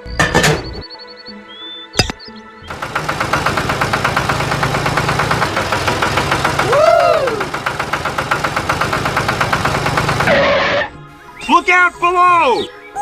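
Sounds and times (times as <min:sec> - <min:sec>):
tractor engine chugging: 0:02.7 - 0:10.6.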